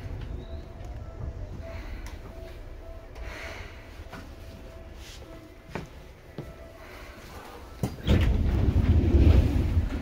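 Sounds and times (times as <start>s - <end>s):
train rumble inside car: 0.0s - 6.6s, 7.4s - 10.0s.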